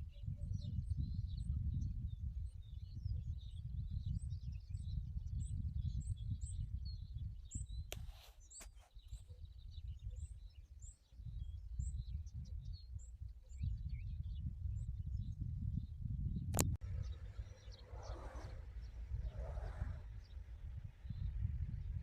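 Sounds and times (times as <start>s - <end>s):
low gusty rumble: 11.2s - 22.0s
small birds chirping: 16.6s - 22.0s.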